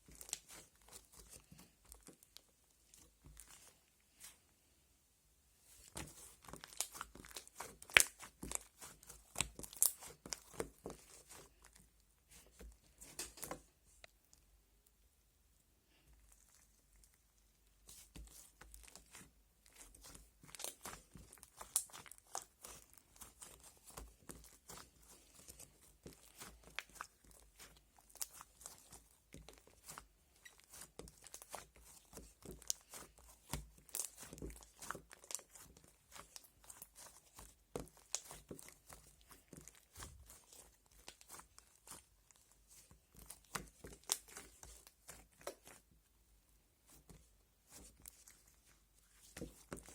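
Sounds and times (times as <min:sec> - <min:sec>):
slime squishing with sticky pops: 0:00.0 - 0:04.4, 0:05.7 - 0:14.4, 0:16.0 - 0:49.9.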